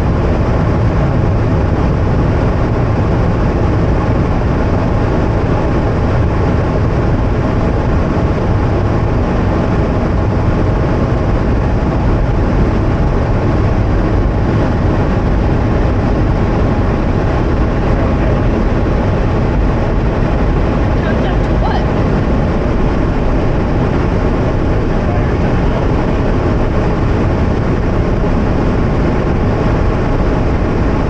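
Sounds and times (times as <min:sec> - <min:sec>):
car wash machinery roaring: 0:00.0 - 0:31.0.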